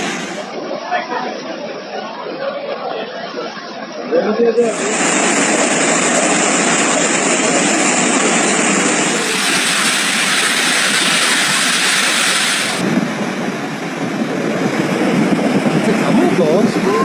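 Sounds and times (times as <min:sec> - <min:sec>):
floodwater rushing: 0:09.0 - 0:12.8.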